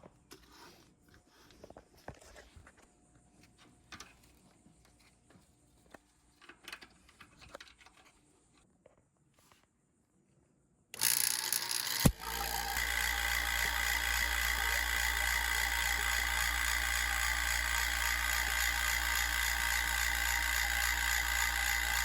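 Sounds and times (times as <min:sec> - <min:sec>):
faint clicks and scrapes: 0:00.0 - 0:09.8
machine humming: 0:11.0 - 0:22.0.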